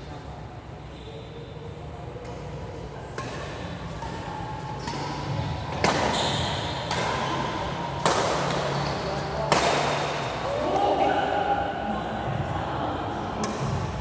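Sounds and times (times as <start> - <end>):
racket hitting shuttlecock: 3.1 - 10.4, 13.4 - 14.0.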